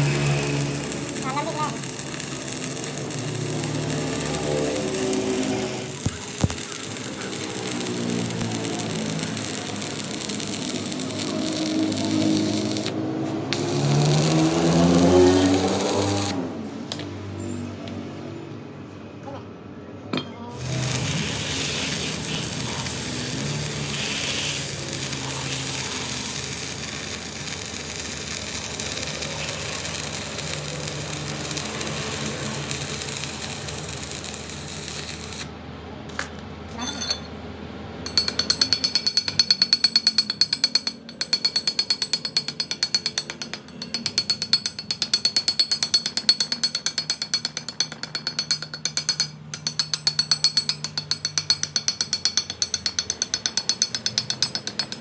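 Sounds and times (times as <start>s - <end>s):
machine hissing with low hum: 0.0s - 13.0s, 20.6s - 35.6s
fast metallic clicks: 38.1s - 55.0s.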